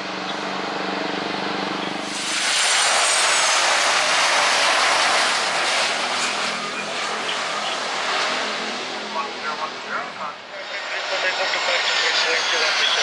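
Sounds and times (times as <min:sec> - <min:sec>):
jet airliner engine roar: 0:00.0 - 0:13.0
jet engine high whine: 0:00.0 - 0:13.0.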